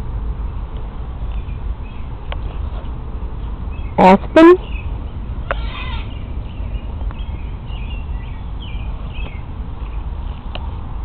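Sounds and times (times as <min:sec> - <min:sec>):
low steady rumble: 0:00.0 - 0:11.0
small birds chirping: 0:01.2 - 0:02.7, 0:03.4 - 0:10.6.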